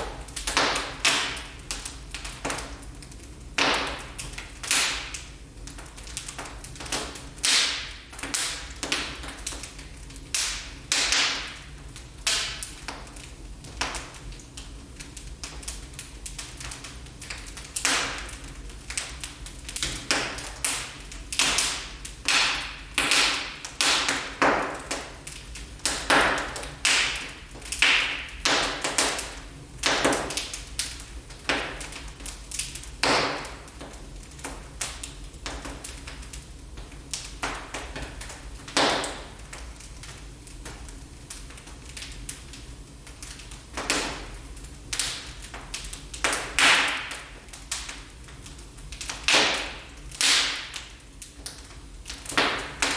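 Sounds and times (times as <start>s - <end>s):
wood fire crackling: 0.0s - 52.9s.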